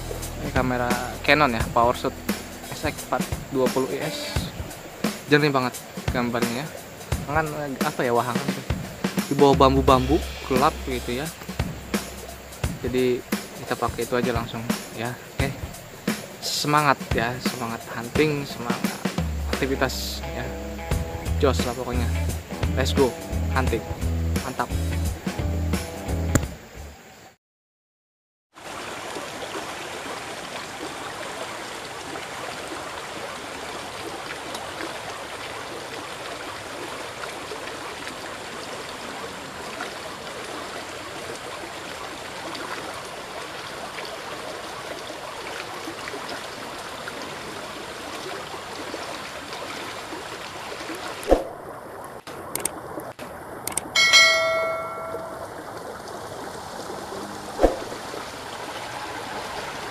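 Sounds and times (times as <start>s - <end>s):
flowing river water: 0.0s - 27.4s, 28.5s - 59.9s
sharp clicks: 52.2s - 53.9s
short ringing tone: 54.0s - 55.5s.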